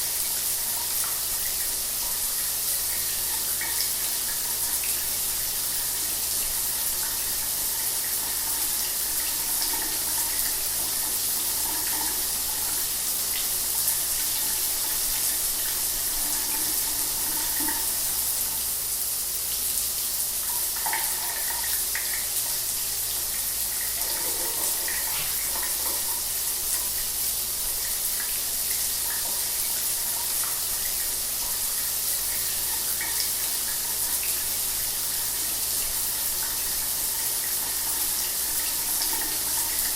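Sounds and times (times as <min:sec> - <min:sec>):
shower spray hissing: 0:00.0 - 0:39.9
water splashes: 0:24.0 - 0:26.1.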